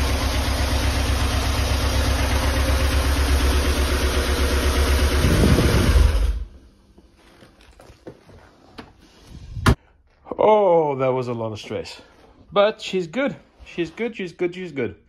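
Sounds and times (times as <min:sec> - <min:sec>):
car engine idling: 0:00.0 - 0:06.7.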